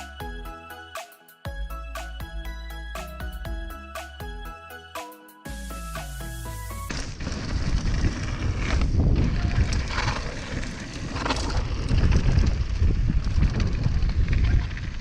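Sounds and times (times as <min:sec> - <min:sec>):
wind buffeting microphone: 0:06.9 - 0:15.0.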